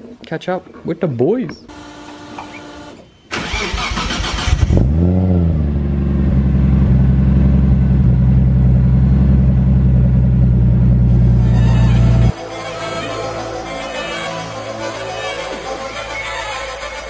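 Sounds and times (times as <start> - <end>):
car engine starting and idling: 1.7 - 12.4.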